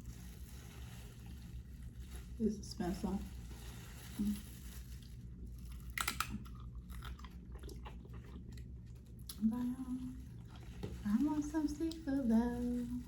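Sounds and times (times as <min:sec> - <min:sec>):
wet chewing and crunching: 0:03.4 - 0:13.0
person humming: 0:09.4 - 0:10.2.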